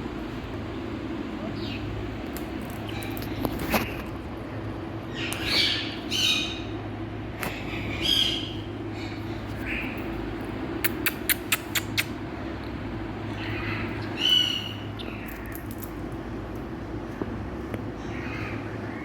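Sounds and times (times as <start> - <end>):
steady low hum: 0.0 - 19.0
sharp clicks: 10.8 - 12.2
parrot squawking: 13.3 - 15.2.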